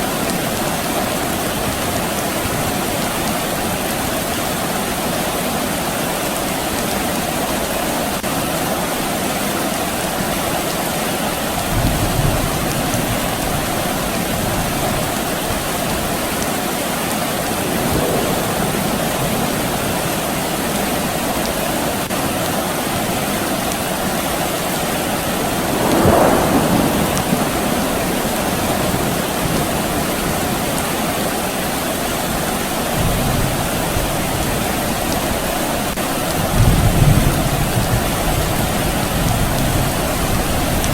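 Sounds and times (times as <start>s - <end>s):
steady rain falling: 0.0s - 40.9s
distant thunder rumbles: 11.3s - 16.4s, 17.2s - 22.2s, 23.0s - 40.9s.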